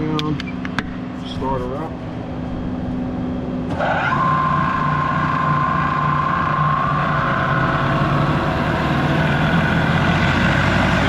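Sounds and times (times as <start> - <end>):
low hum: 0.0 - 11.0
mixer motor whine: 3.6 - 11.0.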